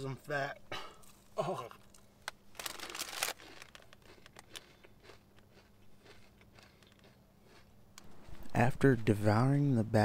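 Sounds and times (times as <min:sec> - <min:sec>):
low steady hum: 0:00.0 - 0:10.0
chips being chewed: 0:01.9 - 0:08.5.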